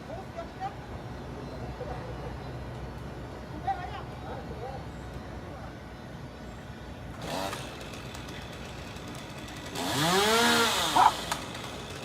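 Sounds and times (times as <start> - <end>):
chainsaw engine revving: 7.2 - 12.0.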